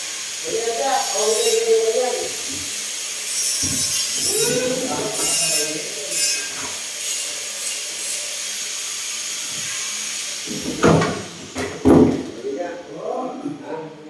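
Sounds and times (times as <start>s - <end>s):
hand tool scraping wood: 1.1s - 7.4s.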